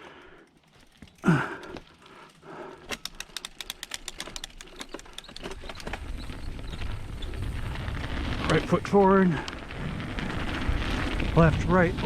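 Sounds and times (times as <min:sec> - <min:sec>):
bike freehub clicking: 0:00.0 - 0:07.9.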